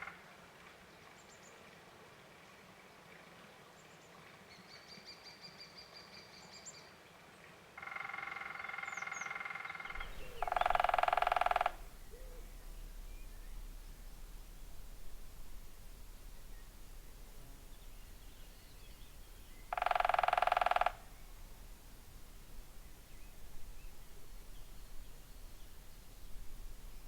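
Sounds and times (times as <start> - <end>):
woodpecker drumming on wood: 7.8 - 27.0
small birds chirping: 8.8 - 27.0.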